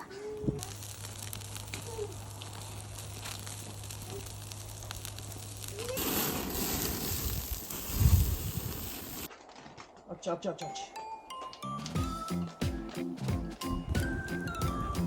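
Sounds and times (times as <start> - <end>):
fire crackling and popping: 0.0 - 10.0
sizzling hiss: 0.2 - 9.3.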